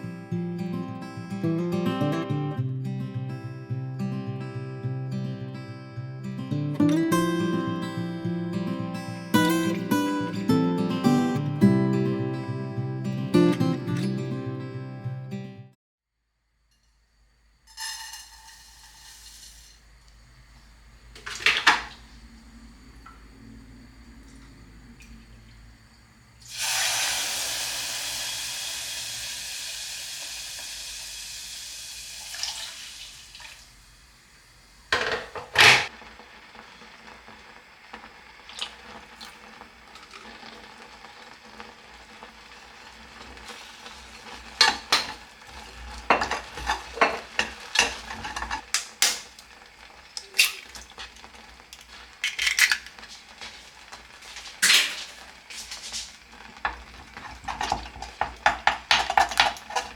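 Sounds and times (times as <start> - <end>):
loud hiss of water: 17.7 - 35.0, 52.8 - 57.1
dishes and cutlery clinking: 44.5 - 49.2, 56.7 - 59.9
spoon stirring in a cup: 44.6 - 48.7, 56.7 - 59.9.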